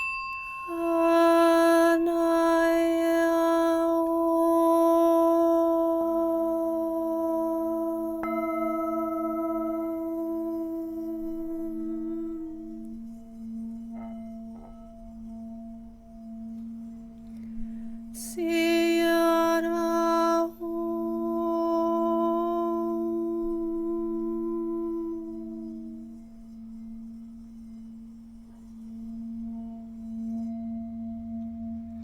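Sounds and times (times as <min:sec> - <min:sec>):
bright ringing tone: 0:00.0 - 0:03.4
singing bowl drone: 0:00.0 - 0:32.0.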